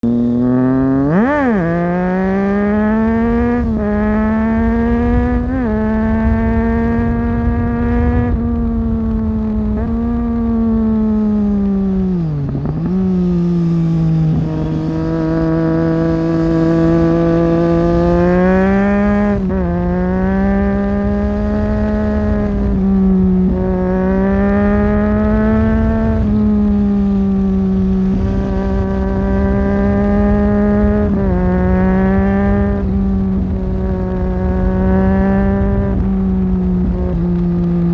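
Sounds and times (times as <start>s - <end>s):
motorcycle engine running on road: 0.0s - 37.9s.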